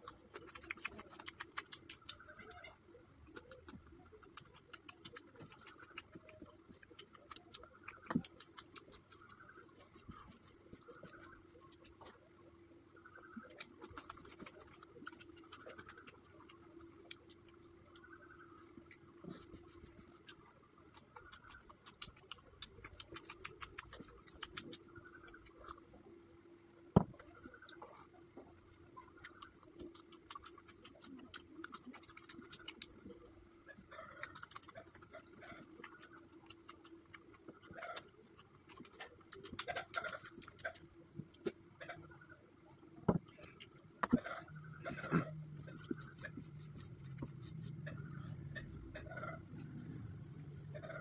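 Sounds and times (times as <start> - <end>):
chewing clicks and smacks: 0.0 - 12.3, 13.0 - 26.1, 27.1 - 42.2, 42.8 - 51.0
low hum: 32.0 - 51.0.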